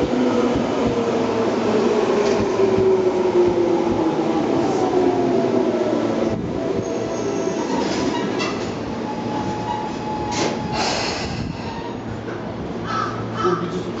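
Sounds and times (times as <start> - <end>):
train wheel rumble: 0.0 - 14.0
short brake hisses: 10.7 - 11.7.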